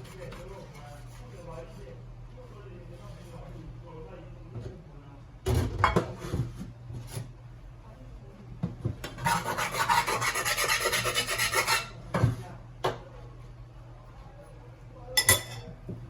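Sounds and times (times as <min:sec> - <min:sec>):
rapid rasping scrape: 0:09.2 - 0:11.9.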